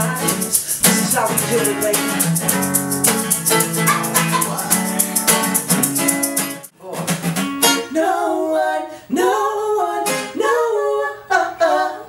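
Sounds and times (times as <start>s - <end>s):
shaker rhythm: 0.0s - 7.4s
acoustic guitar strumming: 0.0s - 8.0s.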